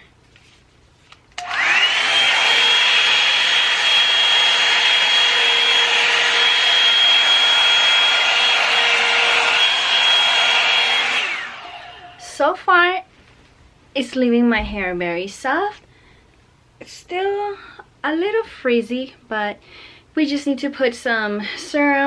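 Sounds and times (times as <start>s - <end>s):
hair dryer brush motor whine: 1.4s - 12.3s.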